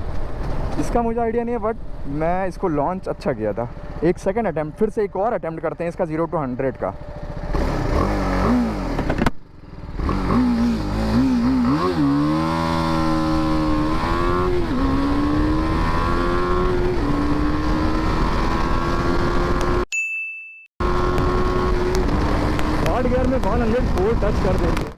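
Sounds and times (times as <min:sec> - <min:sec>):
motorcycle engine revving and accelerating: 0:06.9 - 0:19.8, 0:20.8 - 0:24.9.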